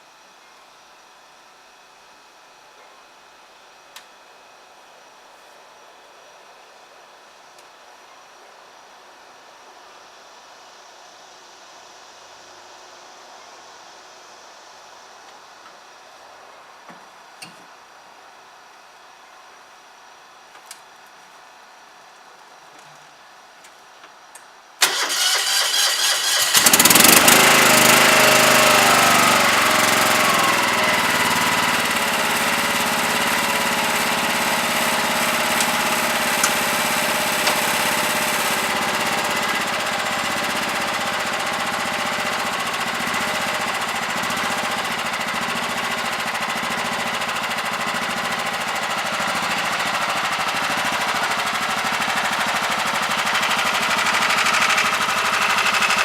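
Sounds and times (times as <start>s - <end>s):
engine starter cranking: 24.8s - 41.3s
lawn tractor engine running: 24.8s - 56.0s.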